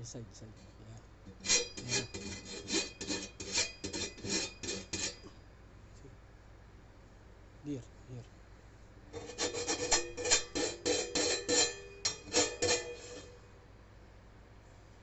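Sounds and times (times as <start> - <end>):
abrasive scraping on cymbal: 1.4 - 5.3, 9.2 - 13.4.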